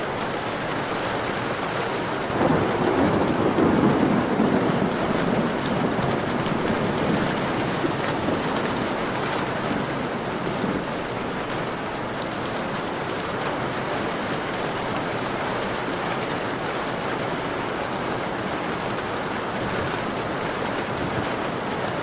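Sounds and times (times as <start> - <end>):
heavy rain on a window: 0.0 - 22.0
thunder rumble: 2.3 - 11.0.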